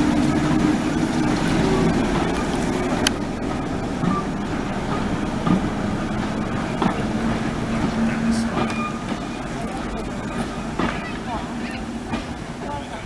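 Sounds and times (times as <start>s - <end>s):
moving train running noise: 0.0s - 13.0s.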